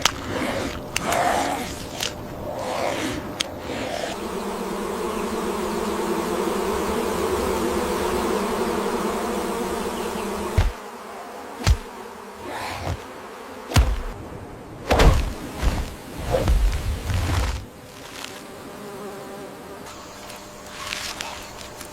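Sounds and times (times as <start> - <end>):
insects buzzing: 0.0 - 21.9
sharp thuds: 10.5 - 10.8, 11.6 - 13.1, 13.7 - 14.2, 14.8 - 17.7.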